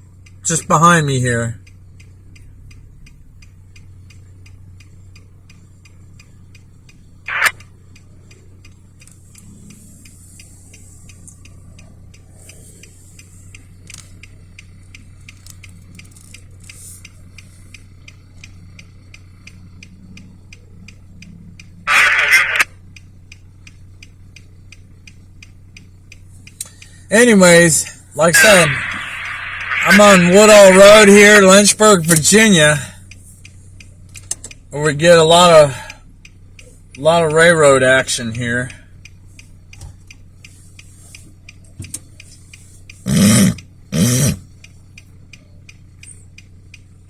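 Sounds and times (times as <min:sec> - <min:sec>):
faint steady ticking: 0:00.0 - 0:47.0
low hum: 0:05.0 - 0:31.1.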